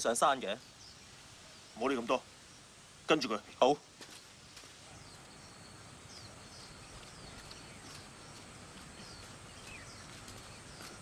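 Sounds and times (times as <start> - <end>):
steady low hiss: 0.0 - 11.0
small bird chirping: 3.8 - 11.0.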